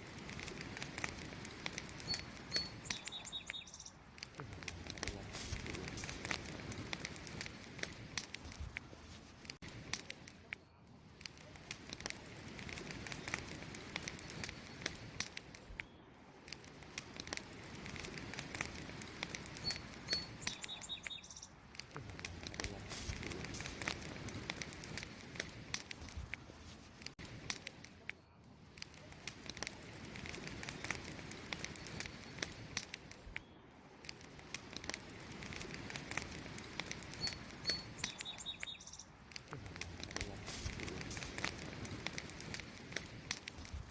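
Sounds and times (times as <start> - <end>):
steady hiss: 0.0 - 28.0, 28.7 - 43.9
wood fire crackling and popping: 0.0 - 43.9
bird chirping: 2.0 - 4.0, 19.6 - 21.6, 37.2 - 39.2.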